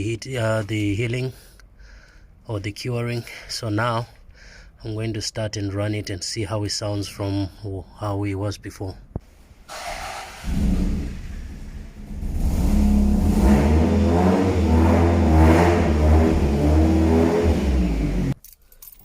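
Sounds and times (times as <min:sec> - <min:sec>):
car engine running: 0:10.4 - 0:18.4.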